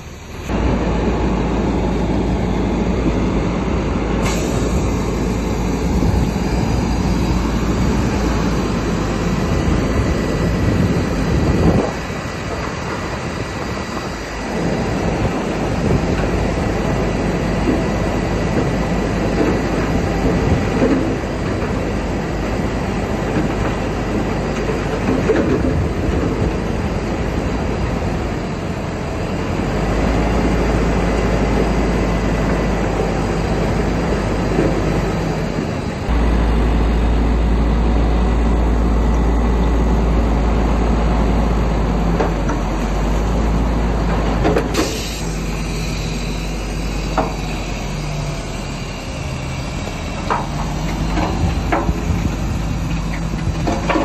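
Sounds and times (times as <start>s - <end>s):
bulldozer diesel engine under load: 0.0s - 54.0s
steel tracks clattering: 4.2s - 29.6s.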